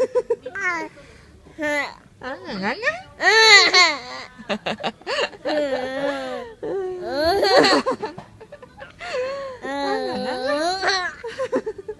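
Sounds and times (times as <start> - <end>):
child laughing: 5.4 - 6.4, 7.0 - 8.2, 9.1 - 11.8.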